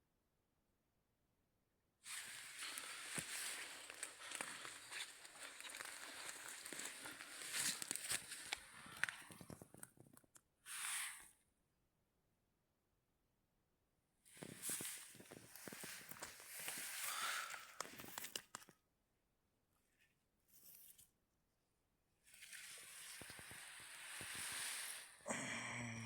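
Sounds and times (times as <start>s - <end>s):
dry leaves and twigs crackling: 2.1s - 9.8s
low sigh or grunt: 25.3s - 26.0s.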